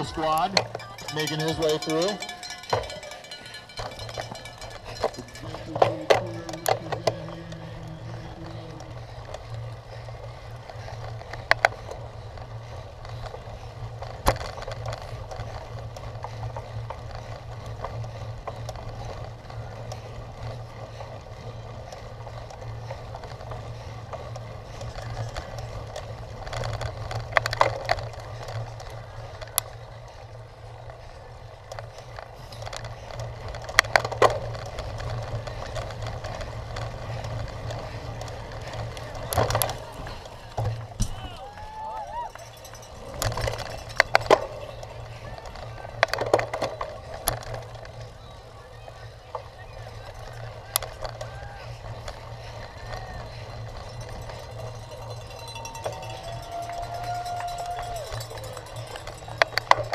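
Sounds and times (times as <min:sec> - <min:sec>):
bike tyre and drivetrain rumble: 0:00.0 - 0:59.9.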